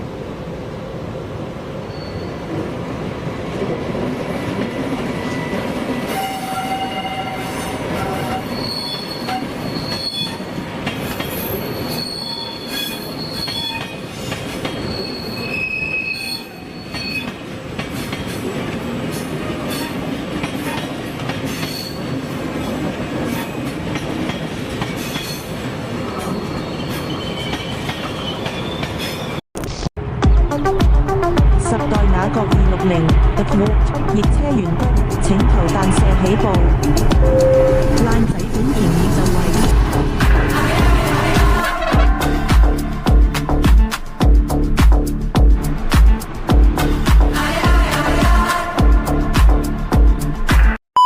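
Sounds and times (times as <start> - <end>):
train rumbling on track: 0.0 - 29.4, 30.0 - 50.8
train wheels squealing: 1.8 - 2.6, 4.6 - 18.3, 19.7 - 23.7, 24.3 - 29.4.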